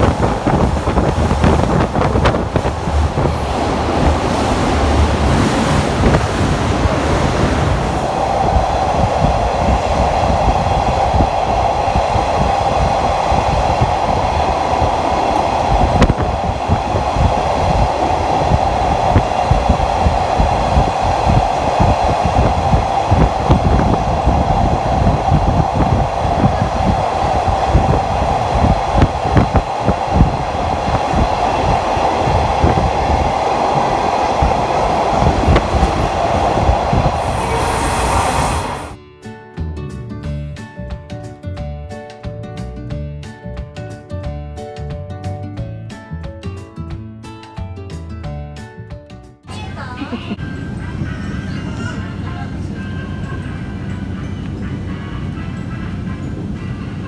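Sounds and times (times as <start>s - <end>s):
wheels clicking over track: 0.0s - 8.4s
steady whine: 0.0s - 26.5s, 29.0s - 39.0s
rush of wind: 0.0s - 39.0s, 50.3s - 57.0s
train rumbling on rails: 0.0s - 39.0s, 49.5s - 57.0s.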